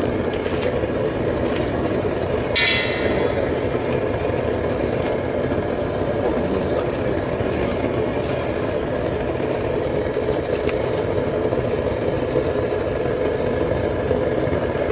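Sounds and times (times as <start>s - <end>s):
propane burner roaring: 0.0s - 14.9s
sharp metal strike: 2.6s - 3.7s.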